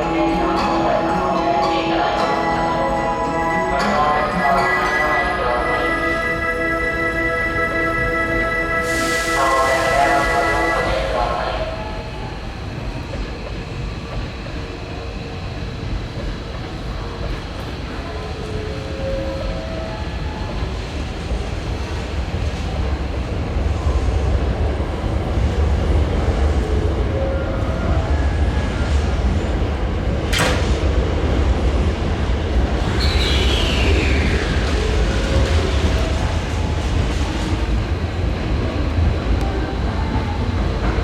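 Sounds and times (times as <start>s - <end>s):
electric train rumbling: 0.0s - 41.0s.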